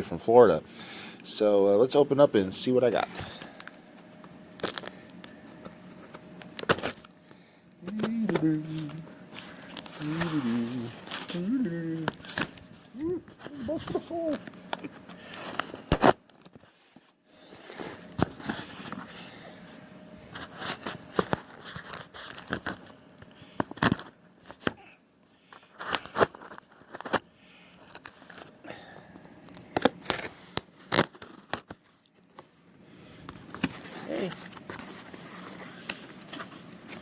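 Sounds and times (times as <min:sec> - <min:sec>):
packaging crinkling and rustling: 0:02.9 - 0:07.2, 0:07.9 - 0:19.3, 0:20.3 - 0:24.7, 0:25.4 - 0:28.6, 0:29.4 - 0:37.0
package being torn open: 0:29.8 - 0:31.8.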